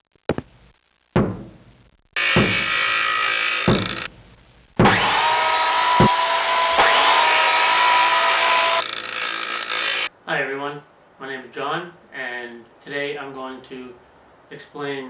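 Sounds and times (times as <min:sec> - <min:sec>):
sharp knocks: 0:01.2 - 0:03.0, 0:03.6 - 0:04.1, 0:04.8 - 0:05.2, 0:06.0 - 0:06.2
power tool running: 0:02.2 - 0:04.1, 0:04.8 - 0:10.1.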